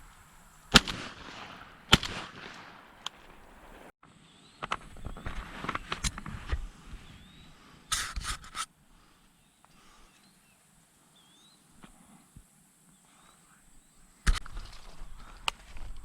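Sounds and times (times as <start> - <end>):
rustling and scraping: 4.6 - 8.7
faint bird chirps: 9.2 - 14.2.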